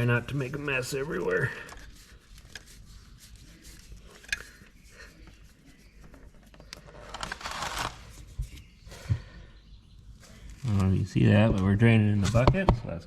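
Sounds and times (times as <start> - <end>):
oil filter clicks and scrapes: 0.1 - 5.4.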